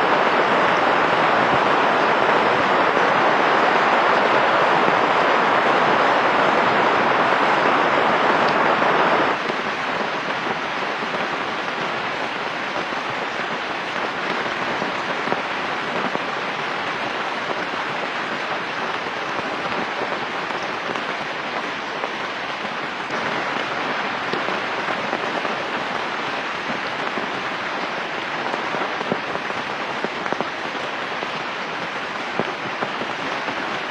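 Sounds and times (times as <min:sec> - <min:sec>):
rain falling: 0:00.0 - 0:33.9.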